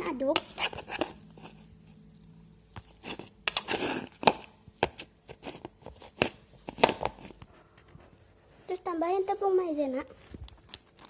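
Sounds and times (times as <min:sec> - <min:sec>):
short scrape in a bowl: 0:00.4 - 0:01.7, 0:02.8 - 0:07.4.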